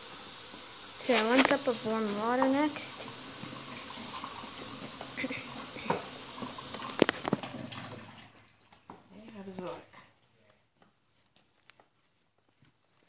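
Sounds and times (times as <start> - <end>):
water running into a cup: 0.0 - 8.4.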